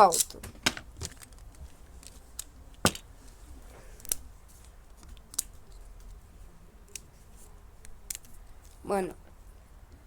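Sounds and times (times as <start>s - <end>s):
plastic toy parts clicking: 5.0s - 5.8s, 7.8s - 8.8s.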